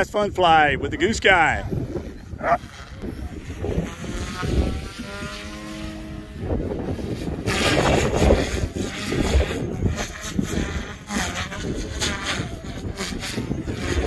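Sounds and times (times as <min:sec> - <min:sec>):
helicopter motor and rotor whine: 0:00.0 - 0:14.0
wind buffeting microphone: 0:00.0 - 0:14.0.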